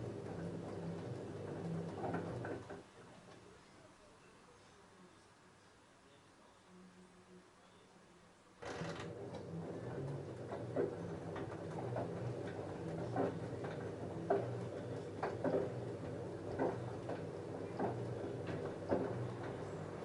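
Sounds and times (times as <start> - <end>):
washing machine motor hum: 0.0 - 2.9, 8.6 - 20.0.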